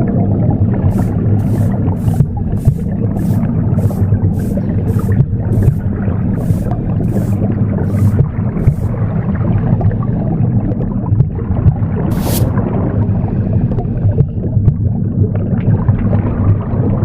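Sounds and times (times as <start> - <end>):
broom sweeping: 0.9 - 9.0, 12.1 - 12.6
steady low whooshing: 0.9 - 9.4, 12.0 - 14.3.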